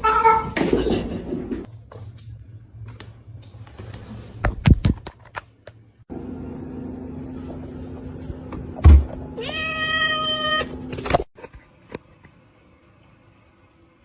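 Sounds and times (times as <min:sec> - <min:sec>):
cat meowing: 0:09.4 - 0:10.7.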